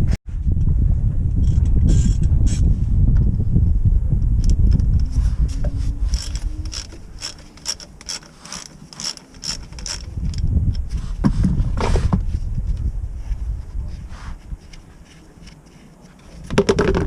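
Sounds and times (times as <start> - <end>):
low rumble: 0.0 - 8.1, 9.4 - 14.9
socket ratchet clicking: 6.1 - 10.8.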